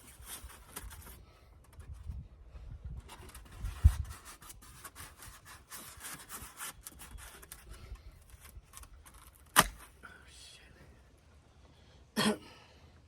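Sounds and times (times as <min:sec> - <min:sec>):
foam board rubbing and scraping: 0:03.1 - 0:07.7.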